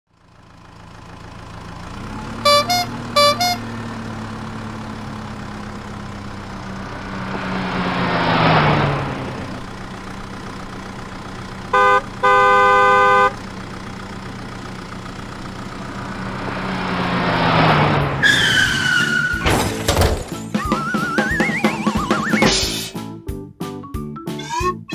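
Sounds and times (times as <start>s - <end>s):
vehicle passing by: 1.8s - 20.6s
cartoon engine humming: 1.9s - 22.9s, 24.4s - 24.9s
horn beeping: 2.2s - 7.9s, 9.2s - 16.8s, 20.4s - 23.0s, 24.4s - 24.9s
falling squeal: 17.4s - 23.0s, 24.4s - 24.9s
sharp clatters: 18.2s - 20.7s.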